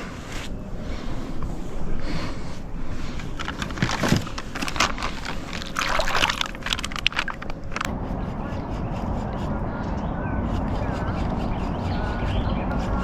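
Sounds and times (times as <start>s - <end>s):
water sloshing and trickling: 3.3s - 7.9s.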